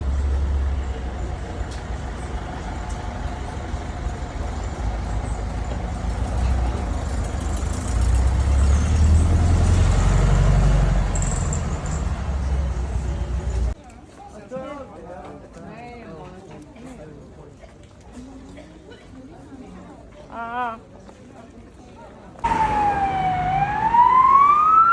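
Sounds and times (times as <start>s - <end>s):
traffic engine rumble: 0.0s - 13.8s, 22.4s - 24.9s.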